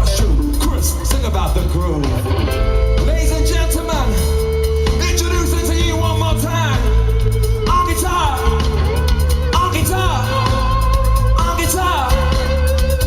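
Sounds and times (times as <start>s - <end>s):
live rock band playing: 0.0s - 13.0s
person singing: 3.0s - 13.0s.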